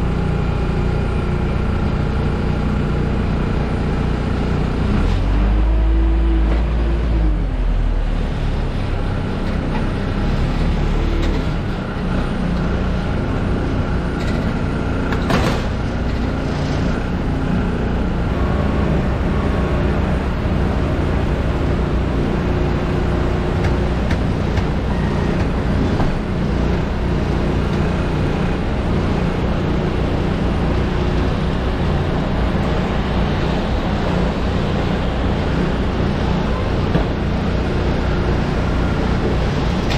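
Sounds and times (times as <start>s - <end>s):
vehicle engines rumbling: 0.0s - 39.9s.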